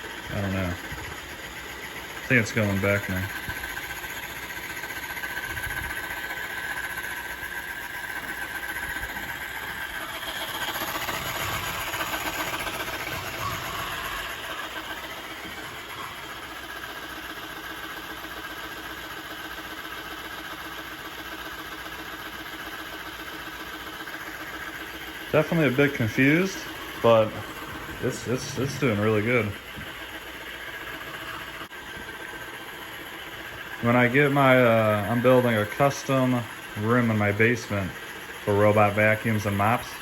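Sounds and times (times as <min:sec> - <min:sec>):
oscillating mop: 0:00.0 - 0:18.8, 0:23.2 - 0:40.0
robot vacuum humming and whining: 0:08.1 - 0:17.1, 0:25.2 - 0:32.6.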